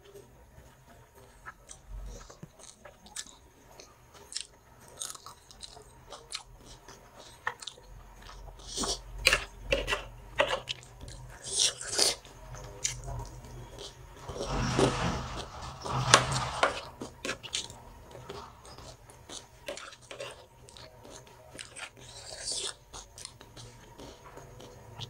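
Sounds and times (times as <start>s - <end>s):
close-up chewing with crunches: 1.4s - 12.2s, 19.6s - 25.0s.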